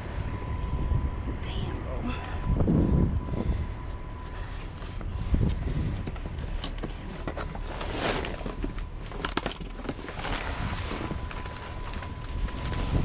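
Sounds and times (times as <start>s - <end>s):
wind rumble on microphone: 0.0s - 13.0s
rummaging through trash: 5.4s - 13.0s.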